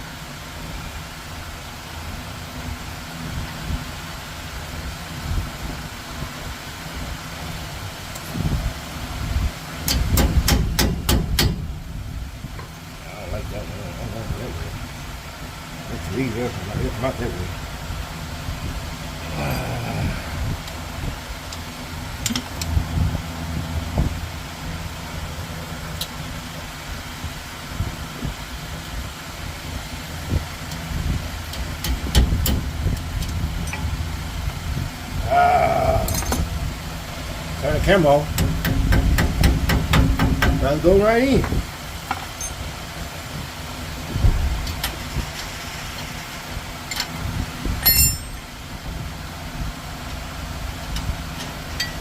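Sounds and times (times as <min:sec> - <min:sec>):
low mechanical hum: 0:00.0 - 0:52.0
low steady rumble: 0:00.0 - 0:52.0
ringing metallic clink: 0:47.8 - 0:48.5.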